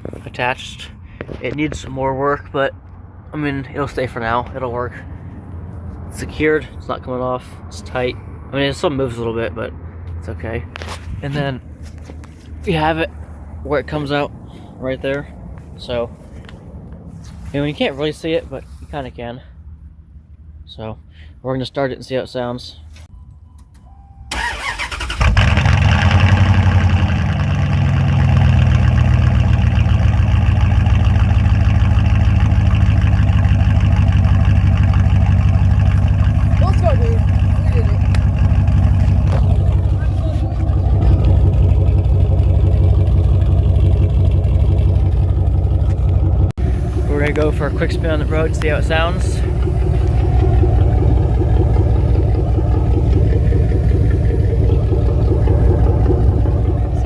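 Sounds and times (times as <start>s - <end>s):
truck engine idling: 23.1s - 57.0s.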